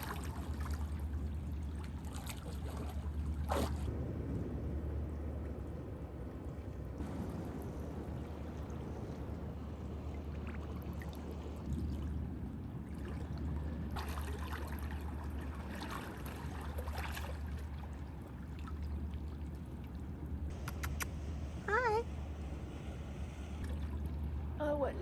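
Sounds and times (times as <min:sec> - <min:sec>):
seawater washing among rocks: 0:00.0 - 0:04.3, 0:07.0 - 0:19.8
steady low rumble: 0:00.0 - 0:25.0.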